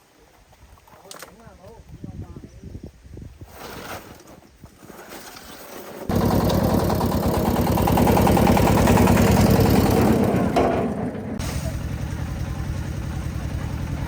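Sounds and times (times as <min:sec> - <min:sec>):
engine running with fast pulsing: 0:06.1 - 0:14.0.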